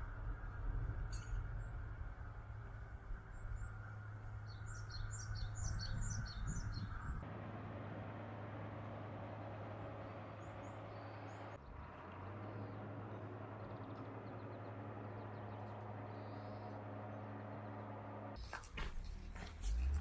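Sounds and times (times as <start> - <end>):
faint bird chirps: 3.1 - 7.2.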